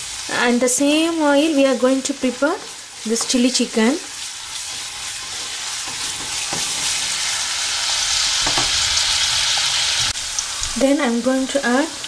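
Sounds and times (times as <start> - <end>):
vegetables sizzling in hot oil: 0.0 - 12.0
spatula stirring in wok: 2.2 - 7.4.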